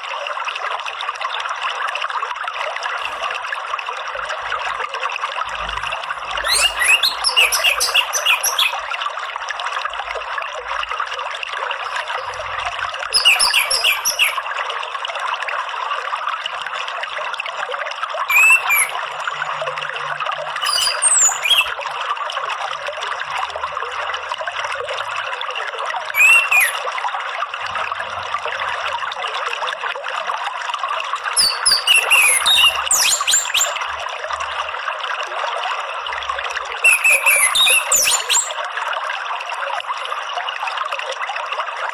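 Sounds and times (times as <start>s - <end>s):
water trickling: 0.0s - 41.9s
thrush chirping song: 6.4s - 8.8s, 13.1s - 14.4s, 18.3s - 19.2s, 20.6s - 21.8s, 26.2s - 26.8s, 31.4s - 33.8s, 36.8s - 38.6s.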